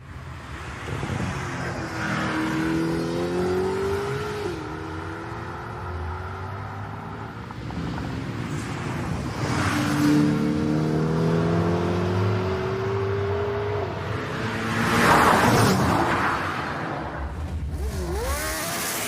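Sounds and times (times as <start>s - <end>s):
car passing by: 14.1s - 19.0s.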